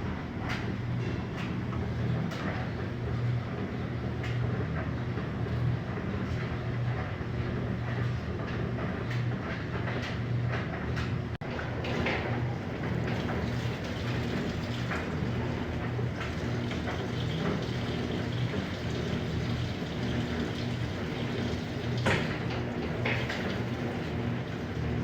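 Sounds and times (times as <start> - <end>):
washing machine motor hum: 0.0 - 25.0
water splashing and pouring: 12.8 - 25.0.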